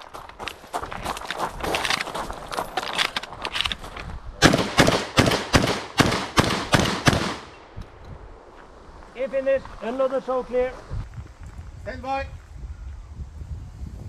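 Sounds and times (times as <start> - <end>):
shotgun shots: 4.4 - 7.7.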